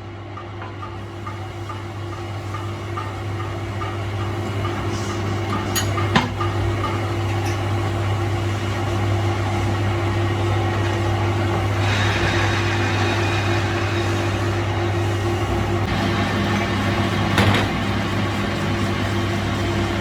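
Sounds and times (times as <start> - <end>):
machine motor humming: 1.0 - 20.0
hiss: 9.8 - 16.9.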